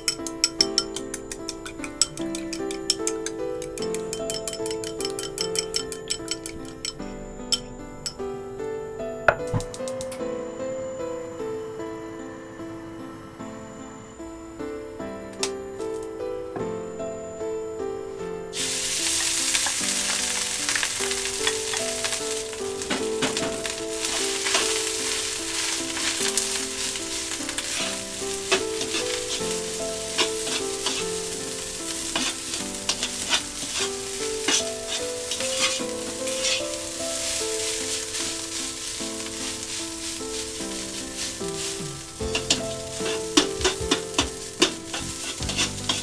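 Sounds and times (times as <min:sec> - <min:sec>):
melodic music: 0:00.0 - 0:46.0
food sizzling in wok: 0:18.5 - 0:46.0
stirring clicks and scrapes: 0:23.3 - 0:31.3, 0:32.1 - 0:46.0.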